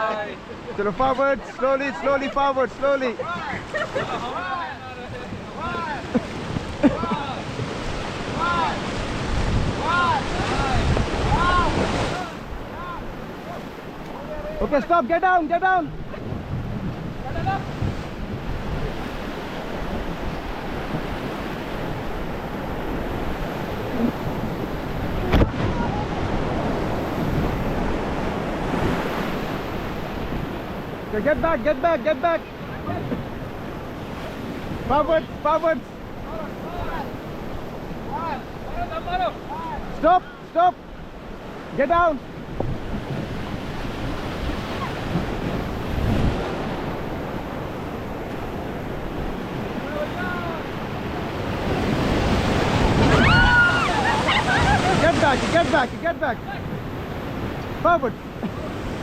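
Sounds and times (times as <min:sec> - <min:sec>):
whitewater rushing: 0:00.0 - 0:59.0
wind buffeting microphone: 0:05.0 - 0:14.6, 0:15.9 - 0:31.7, 0:42.3 - 0:59.0.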